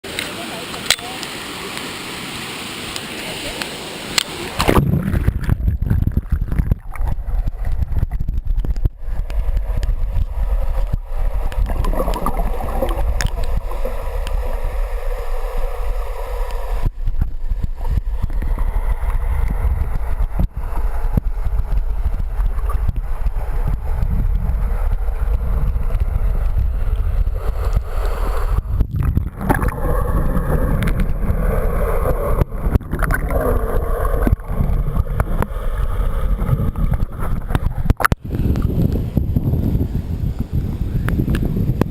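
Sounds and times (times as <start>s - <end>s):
waterfall rushing: 0.0s - 5.1s
wind buffeting microphone: 4.4s - 41.9s.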